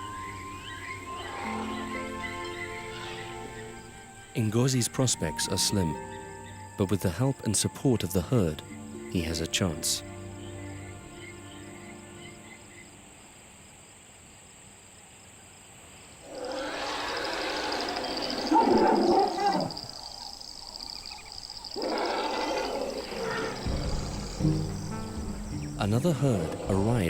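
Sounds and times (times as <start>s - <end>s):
elephant bellowing: 0.0s - 4.2s, 16.2s - 27.0s
insects chirring: 0.0s - 27.0s.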